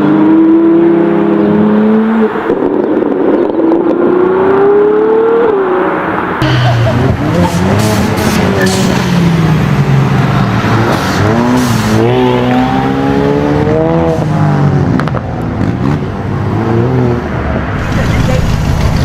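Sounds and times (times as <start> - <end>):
sports car engine accelerating: 6.4 - 17.2.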